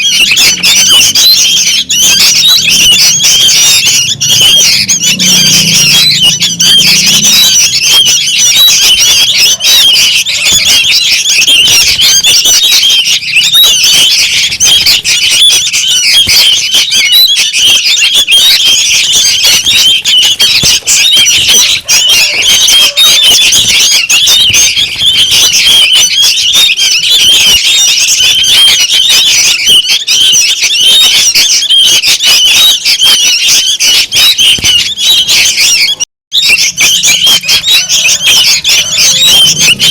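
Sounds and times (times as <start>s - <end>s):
bulbuls chattering calls: 0.0s - 39.9s.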